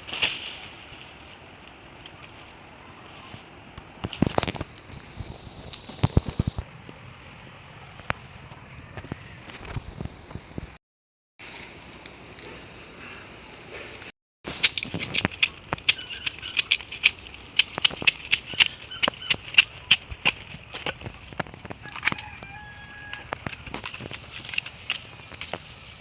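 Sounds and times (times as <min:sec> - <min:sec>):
sharp snaps and crackles: 0:03.8 - 0:06.7, 0:11.4 - 0:26.0.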